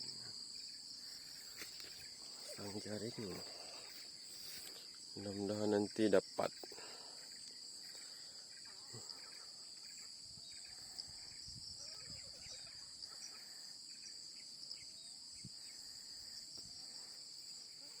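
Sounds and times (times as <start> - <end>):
shrill insect chorus: 0.0 - 18.0
faint bird chirps: 7.2 - 16.8.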